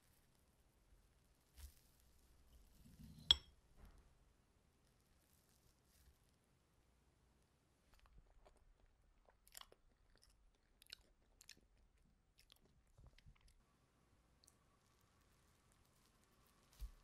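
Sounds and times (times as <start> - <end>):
soft mouth chewing clicks: 7.9 - 13.6.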